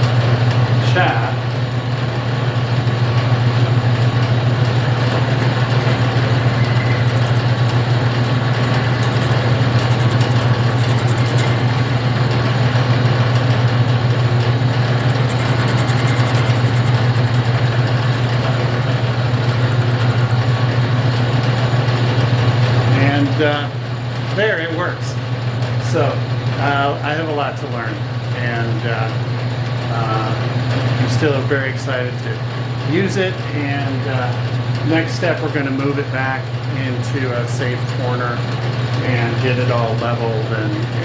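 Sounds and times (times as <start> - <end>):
metal lathe humming: 3.0 - 20.8.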